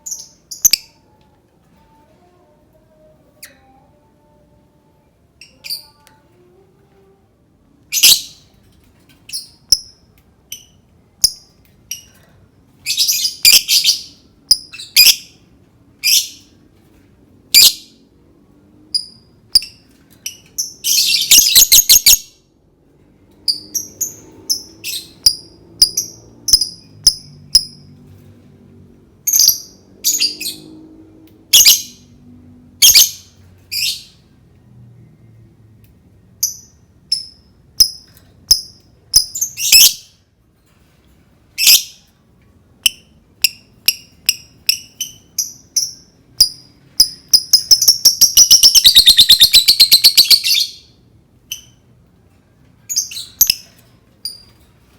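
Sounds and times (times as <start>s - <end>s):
lovebird chirping: 0.0s - 1.1s, 7.9s - 8.4s, 12.8s - 15.4s, 19.0s - 22.4s, 36.4s - 40.1s, 42.8s - 51.8s, 52.9s - 54.5s.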